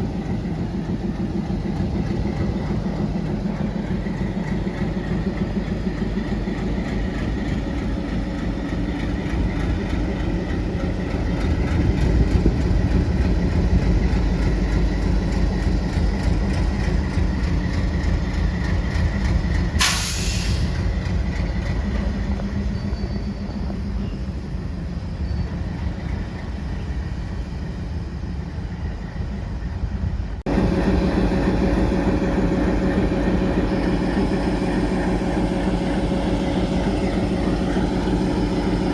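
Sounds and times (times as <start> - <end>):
diesel locomotive engine idling: 0.0 - 38.9
air release hiss: 19.8 - 20.8.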